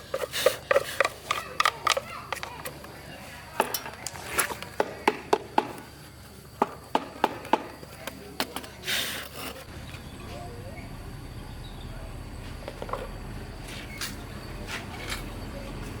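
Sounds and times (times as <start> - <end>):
tools and parts clicking: 0.0 - 3.0.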